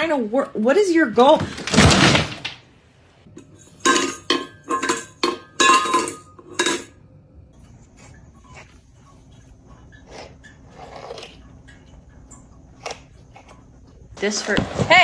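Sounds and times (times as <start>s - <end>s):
dishes and cutlery clattering: 3.6s - 7.0s.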